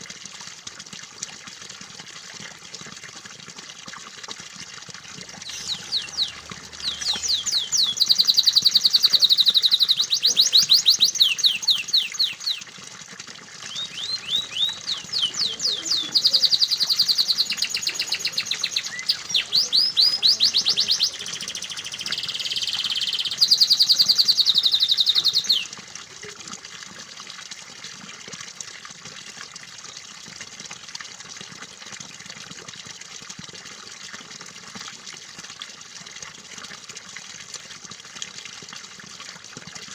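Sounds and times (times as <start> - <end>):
running water: 0.0 - 39.9
canary singing trills: 5.4 - 12.6, 13.7 - 25.7.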